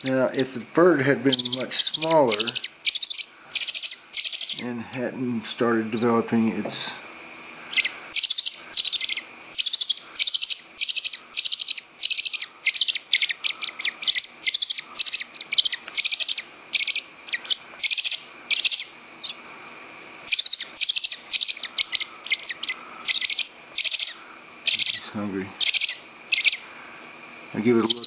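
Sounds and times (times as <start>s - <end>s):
baby bird begging chirps: 1.3s - 4.7s, 7.6s - 19.4s, 20.2s - 26.8s, 27.7s - 28.0s.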